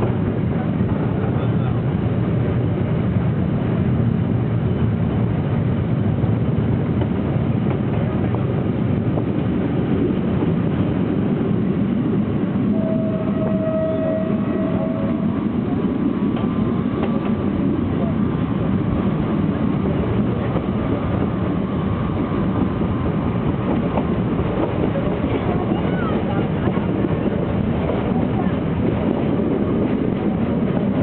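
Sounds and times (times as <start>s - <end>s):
train wheels rumbling: 0.0s - 31.0s
brief steady tone: 12.7s - 15.4s.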